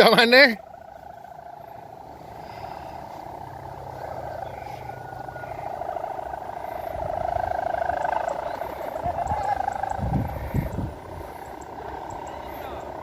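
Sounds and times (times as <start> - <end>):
kite hummer droning buzz: 0.0 - 13.0
wind rumble on microphone: 4.3 - 13.0.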